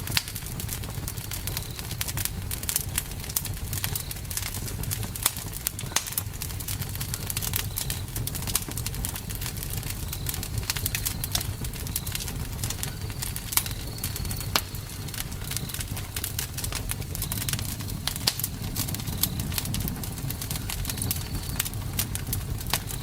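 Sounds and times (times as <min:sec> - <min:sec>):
burning wood crackling and popping: 0:00.0 - 0:23.0
campfire flames rumbling: 0:00.0 - 0:23.0.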